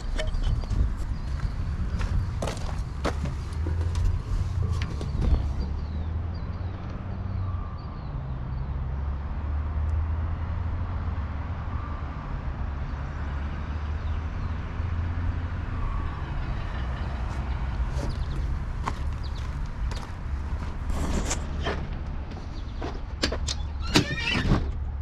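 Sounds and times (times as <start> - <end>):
vehicle engine idling: 15.6 - 23.9.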